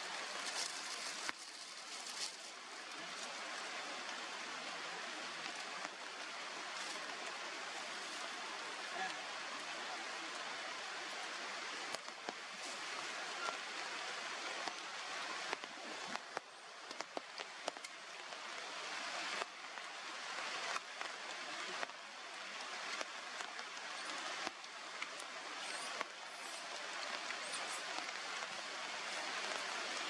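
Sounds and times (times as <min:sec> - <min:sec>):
steady outdoor hiss: 0:00.0 - 0:30.0.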